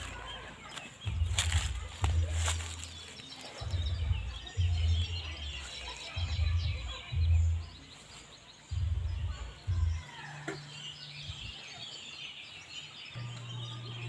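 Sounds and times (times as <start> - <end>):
birds chirping: 0.0 - 14.0
heavy low thumps: 1.0 - 3.0, 3.6 - 5.6, 6.2 - 7.7, 8.7 - 10.1
low hum: 13.2 - 14.0.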